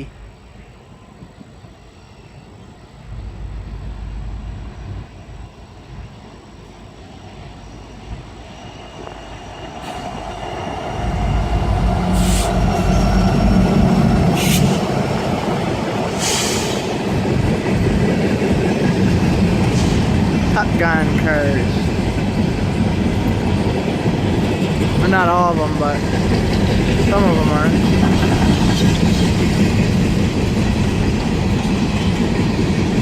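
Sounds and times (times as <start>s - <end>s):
diesel locomotive rumble: 3.0s - 33.0s
short hisses: 12.1s - 12.6s, 16.2s - 16.9s.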